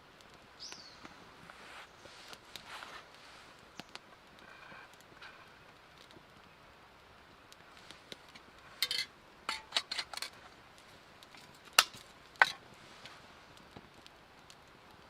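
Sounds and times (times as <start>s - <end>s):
small hard objects clinking: 8.7s - 10.4s.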